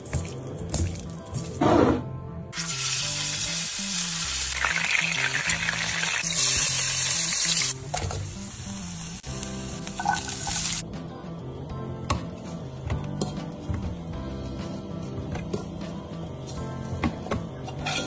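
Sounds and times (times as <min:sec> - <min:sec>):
background music: 0:00.0 - 0:18.0
food sizzling in a pan: 0:02.6 - 0:10.8.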